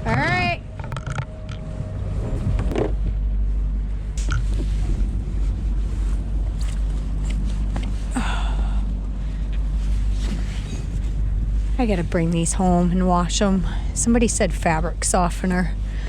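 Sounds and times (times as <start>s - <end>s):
boat engine humming: 0.0s - 16.0s
rustling: 3.4s - 8.2s, 8.8s - 12.1s.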